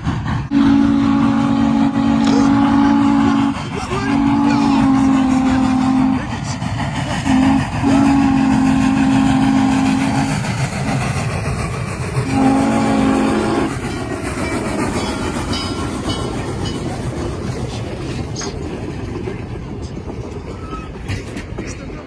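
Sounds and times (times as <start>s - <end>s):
train rumbling: 0.0s - 22.0s
steam locomotive chime whistle: 0.5s - 6.3s, 7.3s - 10.3s, 12.3s - 17.0s.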